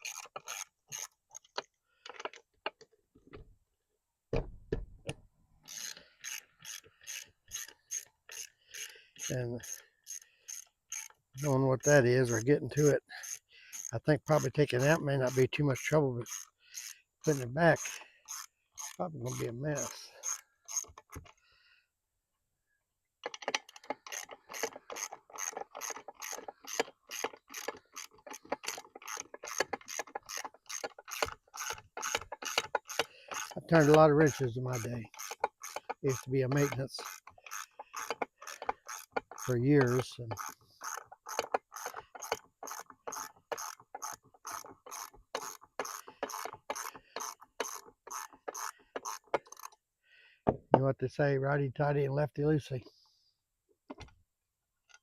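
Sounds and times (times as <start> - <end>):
ratchet wrench clicking: 0.0 - 1.1, 5.7 - 11.1, 13.2 - 13.9, 16.2 - 21.1, 23.2 - 49.7.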